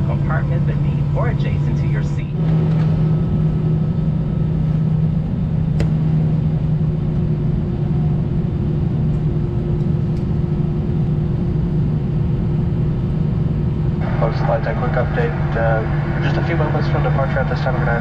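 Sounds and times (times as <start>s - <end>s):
aircraft cabin drone: 0.0s - 18.0s.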